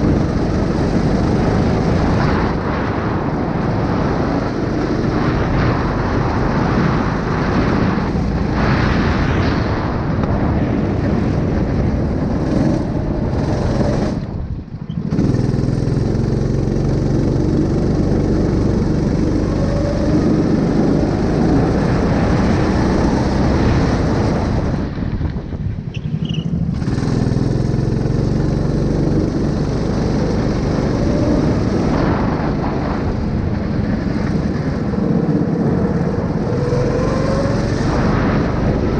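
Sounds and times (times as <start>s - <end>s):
engine running with low hum: 0.0s - 38.9s.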